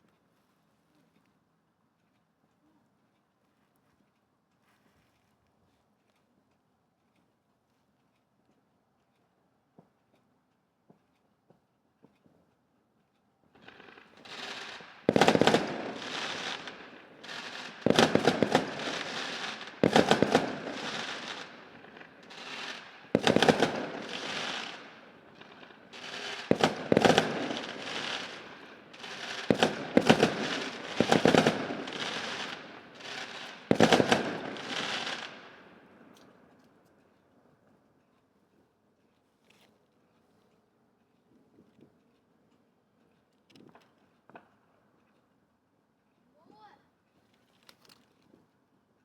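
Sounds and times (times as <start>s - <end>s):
crackling rumble of fireworks: 13.5s - 36.8s
fireworks bangs: 13.6s - 35.9s.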